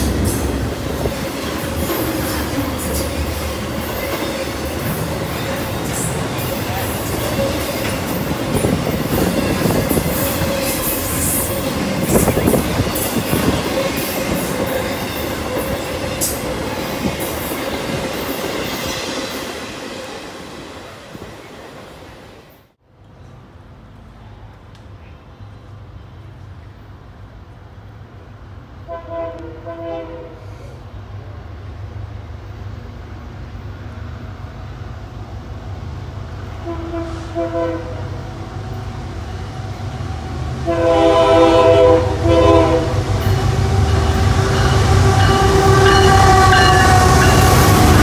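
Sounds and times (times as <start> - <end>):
train wheel noise: 0.0 - 30.1, 31.1 - 48.0
train horn blasts: 28.8 - 30.6, 36.6 - 38.3, 40.6 - 48.0.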